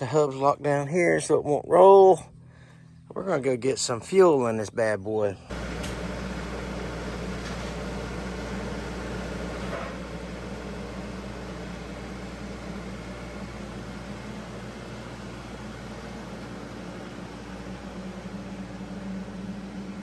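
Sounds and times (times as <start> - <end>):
road noise: 5.5 - 20.0
vehicle engine humming: 5.5 - 20.0.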